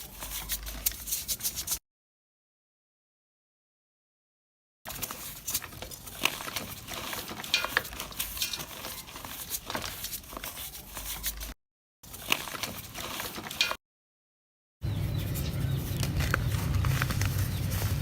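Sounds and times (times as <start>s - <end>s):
dry cups crumbling with crackles: 4.9s - 13.8s, 15.9s - 18.0s.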